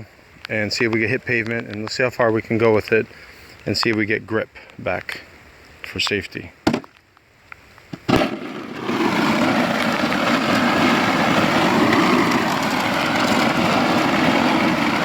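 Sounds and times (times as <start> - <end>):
shovel scraping ice on pavement: 8.1 - 15.0.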